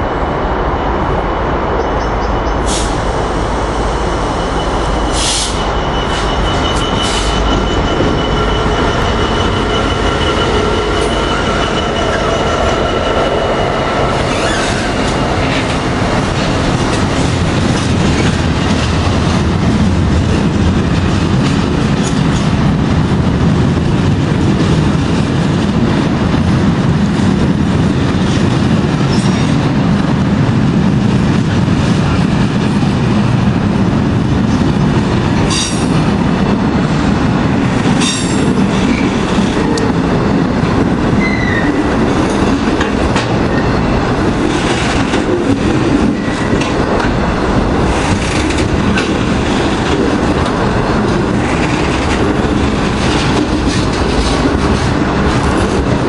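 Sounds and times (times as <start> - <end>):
diesel locomotive engines running: 0.0 - 56.0
steady high squeal: 1.8 - 16.6
wheels clickety-clack: 47.8 - 56.0.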